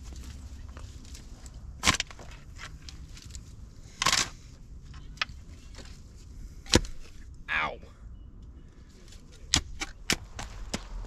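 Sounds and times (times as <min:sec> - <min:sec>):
wood crunching crack: 0:01.8 - 0:03.4.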